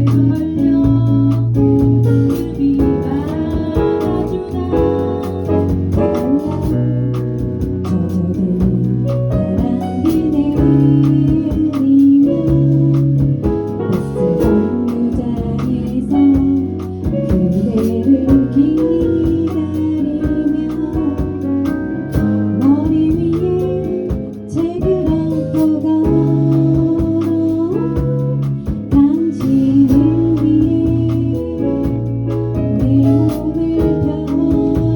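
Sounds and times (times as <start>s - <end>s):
person singing: 0.0s - 7.2s, 7.9s - 34.9s
guitar: 0.0s - 34.9s
keyboard chords: 0.0s - 34.9s
pulsing bass: 0.0s - 34.9s.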